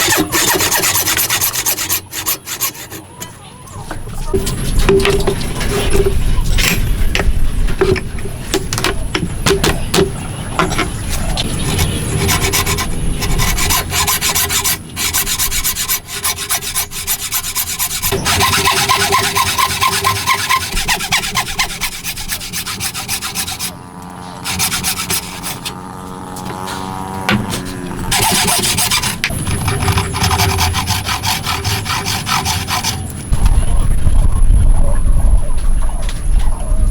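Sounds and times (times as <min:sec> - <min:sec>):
hand tool sawing wood: 0:00.0 - 0:03.4, 0:07.8 - 0:33.3.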